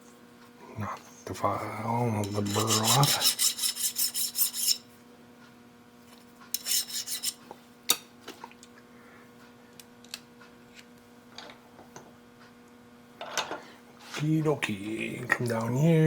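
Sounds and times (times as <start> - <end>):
steady low hum: 0.0 - 16.0
hand file rasping metal: 2.2 - 4.8, 6.6 - 7.4.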